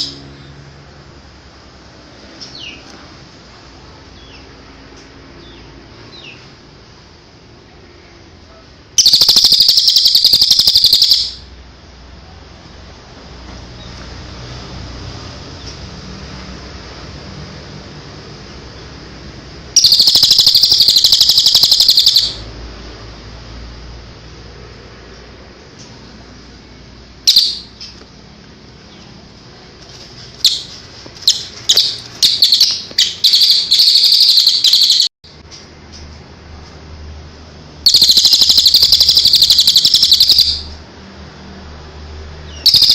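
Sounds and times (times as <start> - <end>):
songbird rapid trill: 0.0 - 0.2, 9.0 - 11.5, 19.8 - 22.5, 27.2 - 28.0, 30.4 - 35.1, 37.8 - 40.8, 42.5 - 42.9.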